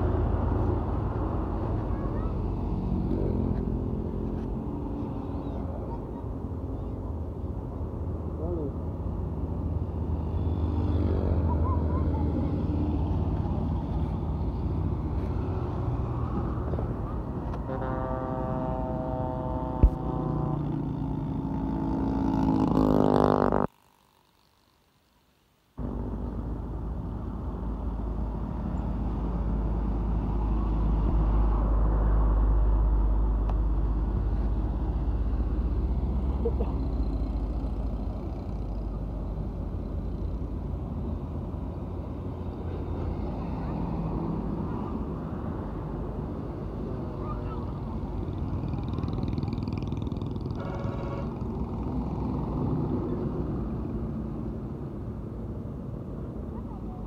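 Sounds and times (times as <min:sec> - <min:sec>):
highway traffic rumble: 0:00.0 - 0:57.0
truck engine droning: 0:13.3 - 0:23.7
vehicle horn blast: 0:17.6 - 0:20.7, 0:50.5 - 0:51.5.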